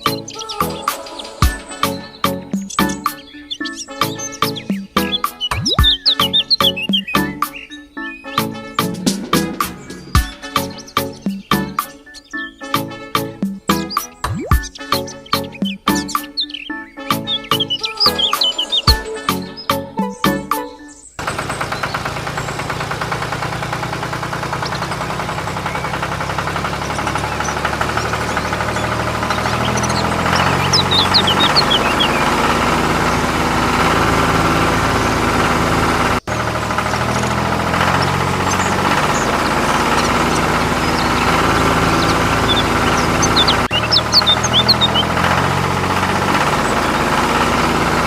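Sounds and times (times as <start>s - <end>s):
small engine knocking: 1.4s - 7.6s, 21.2s - 48.0s.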